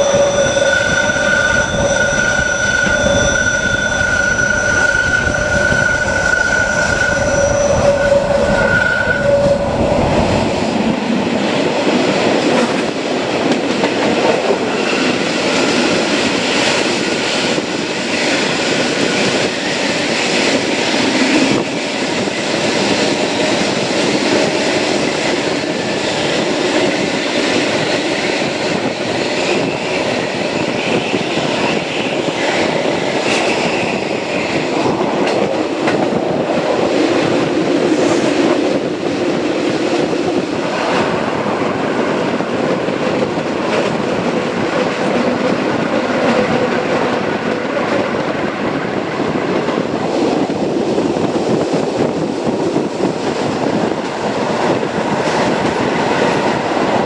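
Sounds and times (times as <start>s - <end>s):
train wheels squealing: 0.0s - 10.5s
train rolling rumble: 0.0s - 57.0s.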